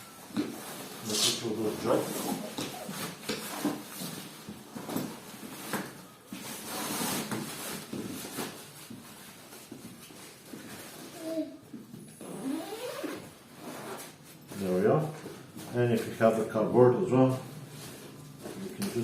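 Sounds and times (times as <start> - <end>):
fabric rustling and scraping: 0.0 - 11.6.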